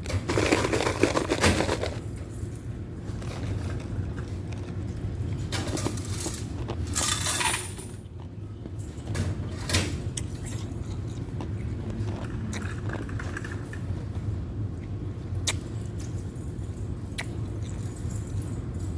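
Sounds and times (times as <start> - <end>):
ice crunching and clinking: 0.0 - 9.0, 10.1 - 13.8
laundry machines humming: 0.0 - 18.9.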